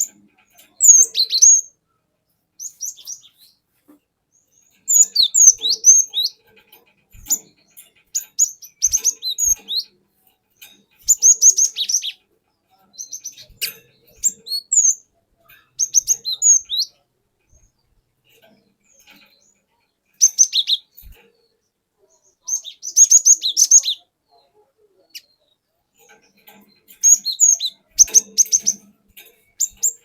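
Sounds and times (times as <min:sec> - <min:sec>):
bird chirping and whistling: 0:00.8 - 0:01.7, 0:04.9 - 0:06.4, 0:08.4 - 0:09.8, 0:15.8 - 0:16.9, 0:20.2 - 0:20.9, 0:22.5 - 0:24.0, 0:27.0 - 0:28.8.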